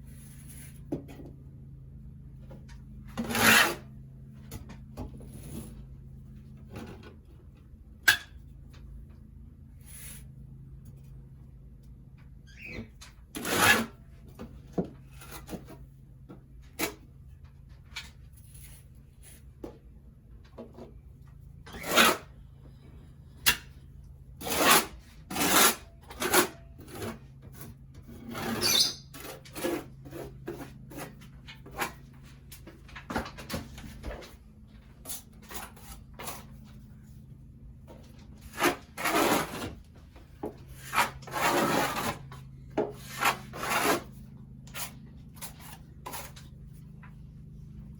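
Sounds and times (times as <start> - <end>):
hand tool rasping on ceiling: 3.2 - 3.9, 13.3 - 14.0, 24.4 - 32.0, 38.4 - 39.9, 40.6 - 47.0.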